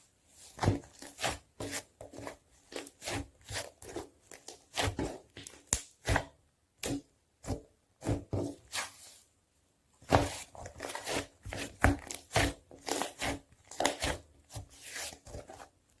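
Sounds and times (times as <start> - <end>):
slime squishing and crackling: 0.5 - 6.2, 10.0 - 15.6.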